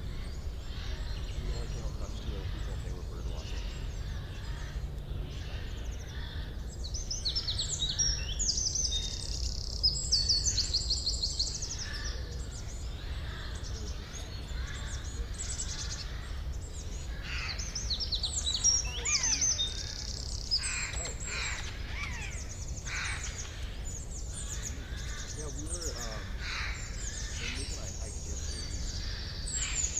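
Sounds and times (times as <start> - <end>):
songbirds chirping and trilling: 0.0 - 29.9.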